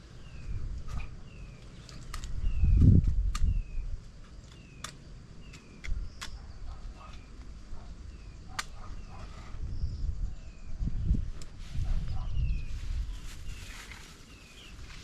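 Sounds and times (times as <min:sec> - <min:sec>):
sharp clicks: 0:01.6 - 0:03.8, 0:04.4 - 0:06.5, 0:08.5 - 0:09.1.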